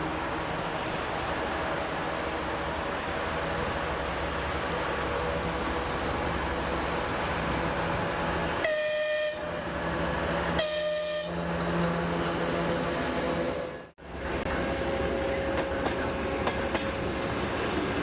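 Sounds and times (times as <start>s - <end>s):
locomotive horn blasts: 8.6s - 9.6s, 10.6s - 11.4s.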